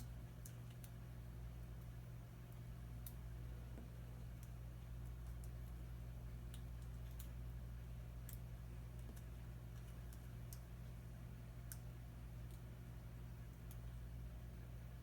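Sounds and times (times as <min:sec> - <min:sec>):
small clicks of picking at tape: 0:00.0 - 0:01.1, 0:01.7 - 0:05.8, 0:06.4 - 0:07.5, 0:08.1 - 0:11.0, 0:11.6 - 0:12.7, 0:13.4 - 0:14.1.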